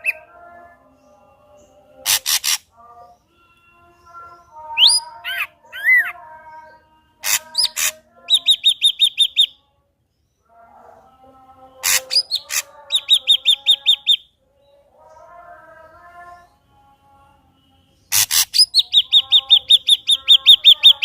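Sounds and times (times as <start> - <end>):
bird singing: 0.0 - 21.0.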